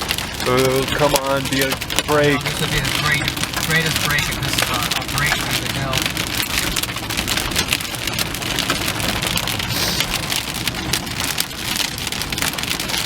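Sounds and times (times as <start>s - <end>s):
steady low rumble: 0.0s - 12.6s
rain on car roof: 0.0s - 13.0s.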